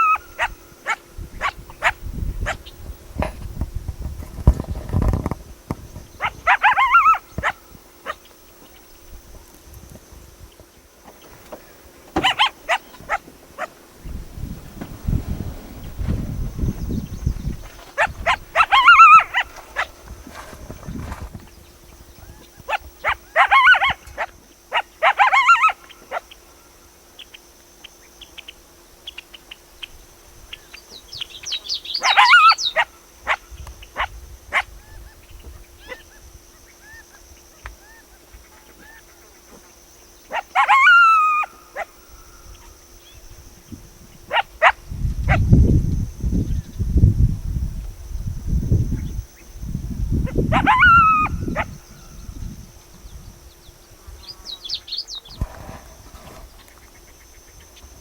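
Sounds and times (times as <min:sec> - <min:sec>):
coyotes yipping and barking: 0:00.0 - 0:03.0, 0:05.9 - 0:09.6, 0:10.5 - 0:46.8, 0:48.9 - 0:52.5.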